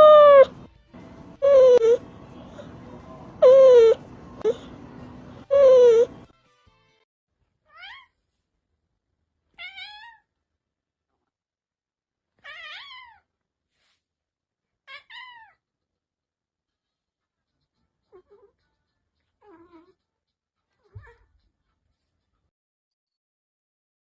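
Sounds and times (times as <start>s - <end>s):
cat meowing: 0.0s - 0.5s, 1.4s - 2.0s, 3.4s - 4.6s, 5.5s - 6.2s, 7.7s - 8.1s, 9.6s - 10.3s, 12.4s - 13.3s, 14.9s - 15.6s, 19.4s - 20.0s.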